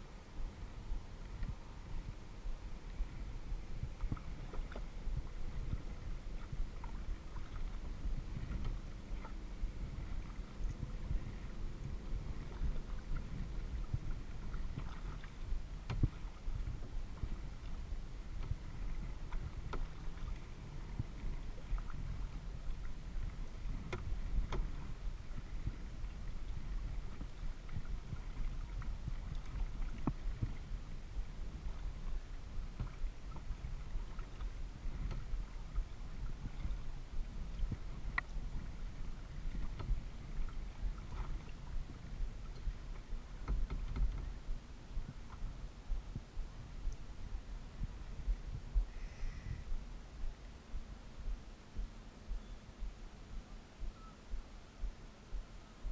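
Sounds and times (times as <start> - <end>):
low steady rumble: 0.0 - 55.9
paddle splashing water: 0.4 - 49.2.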